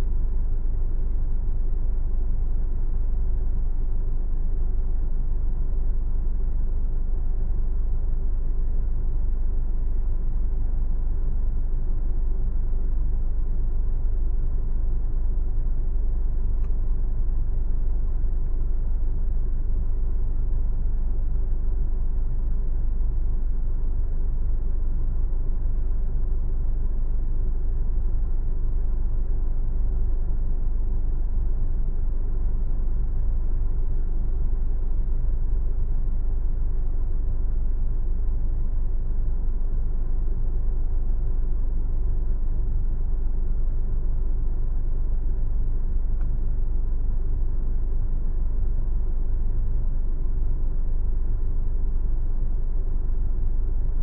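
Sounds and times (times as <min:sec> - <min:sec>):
faint click: 0:16.6 - 0:16.8, 0:46.2 - 0:46.4.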